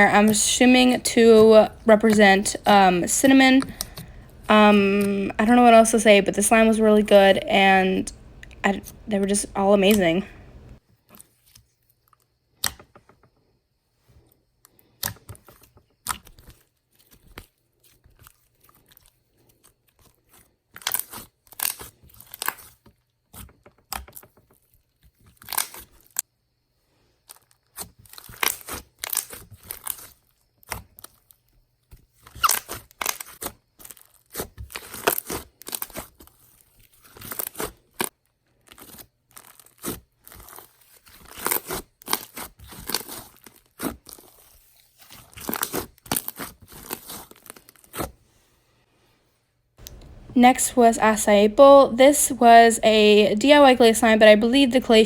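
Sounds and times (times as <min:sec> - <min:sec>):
slime crackling and popping: 0:19.8 - 0:24.6, 0:27.3 - 0:48.1.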